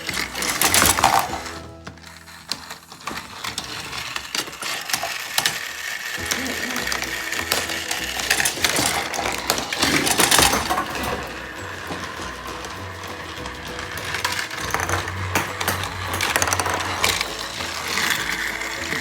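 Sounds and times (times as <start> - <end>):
plastic clattering: 0.0 - 19.0
toy train clicking and rattling: 0.0 - 19.0.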